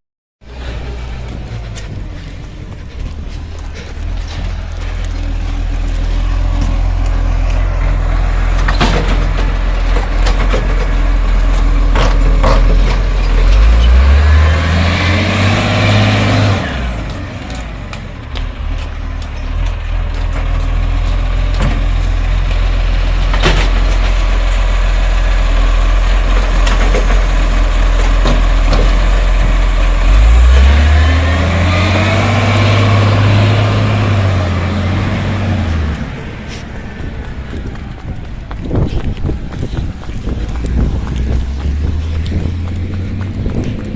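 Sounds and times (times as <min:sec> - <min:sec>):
diesel engine idling and revving: 0:00.4 - 0:43.9
sharp clunks and knocks: 0:08.5 - 0:13.6.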